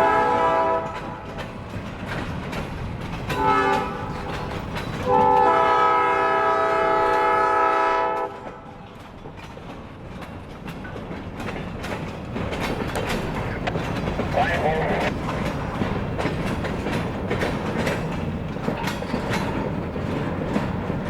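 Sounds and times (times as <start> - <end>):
locomotive air horn: 0.0 - 1.2, 3.4 - 4.1, 5.0 - 8.6
train rumbling on rails: 0.0 - 21.0.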